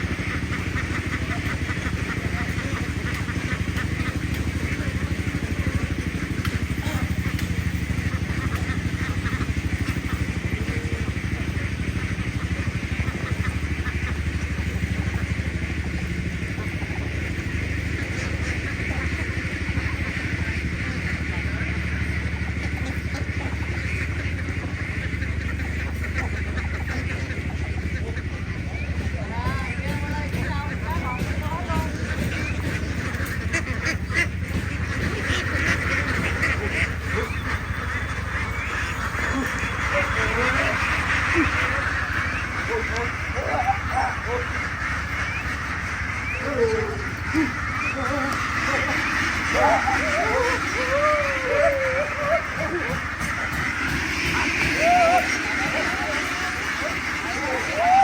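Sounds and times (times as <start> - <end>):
ducks quacking: 0.0 - 58.0
engine running at low speed: 0.0 - 58.0.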